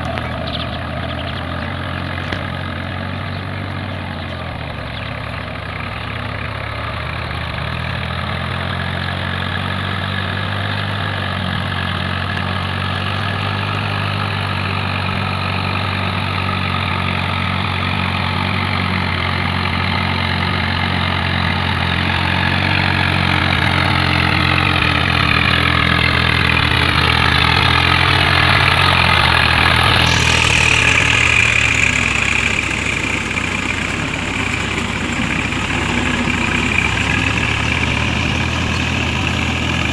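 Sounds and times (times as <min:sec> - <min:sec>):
diesel tractor engine running: 0:00.0 - 0:39.9
rising whine: 0:23.0 - 0:39.9.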